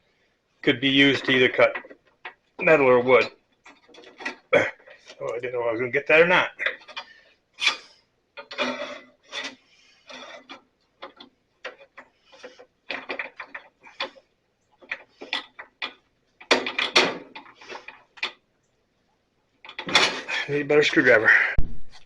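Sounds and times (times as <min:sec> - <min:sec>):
metal parts clicking and scraping: 0:03.6 - 0:05.4, 0:06.6 - 0:18.4, 0:19.6 - 0:21.2.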